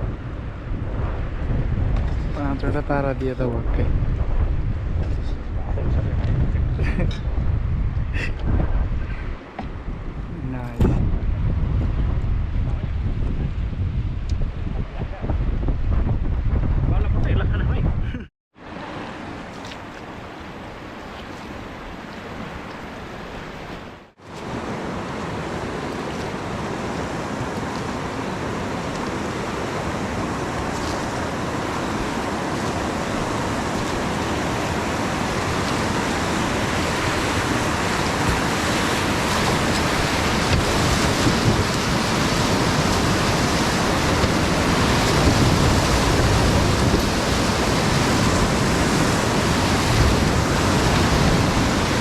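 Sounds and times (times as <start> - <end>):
fast river rushing: 18.6 - 52.0.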